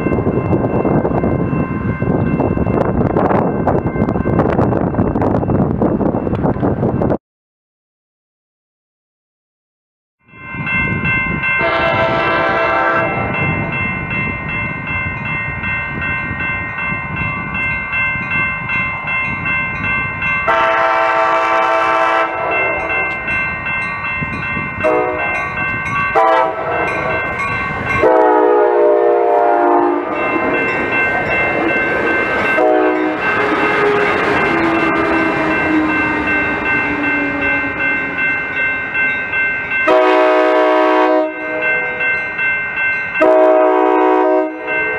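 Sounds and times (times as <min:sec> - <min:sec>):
passing train rumble: 0:00.0 - 0:07.2, 0:10.3 - 0:44.9
locomotive air horn blasts: 0:11.6 - 0:13.4, 0:20.5 - 0:23.0, 0:24.8 - 0:25.5, 0:26.1 - 0:27.2, 0:28.0 - 0:30.2, 0:32.6 - 0:35.9, 0:39.9 - 0:41.6, 0:43.2 - 0:44.7
steady high ringing: 0:13.2 - 0:40.4.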